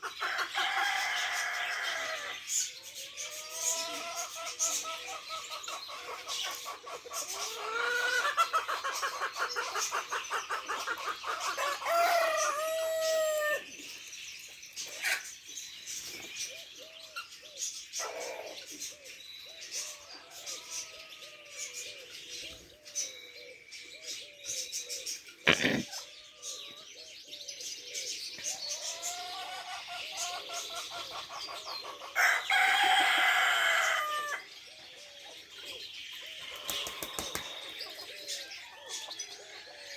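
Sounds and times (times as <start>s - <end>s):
pigeons cooing: 0.0s - 13.6s, 16.2s - 39.9s
rooster crowing: 0.2s - 2.4s, 11.6s - 13.6s, 32.2s - 34.5s.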